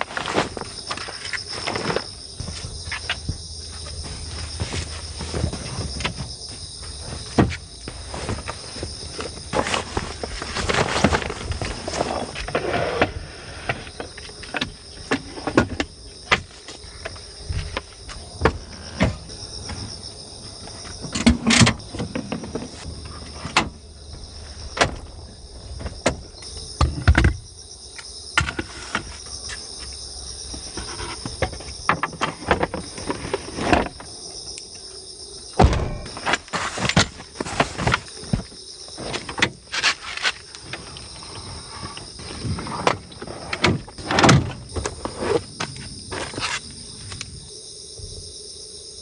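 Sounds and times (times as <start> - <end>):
objects being handled clattering: 0.0 - 20.0, 35.6 - 45.1
insects chirring: 0.0 - 49.0.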